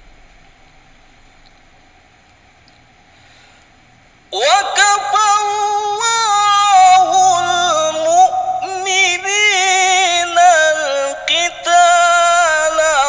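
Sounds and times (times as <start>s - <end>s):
man reciting melodically: 4.3s - 13.0s.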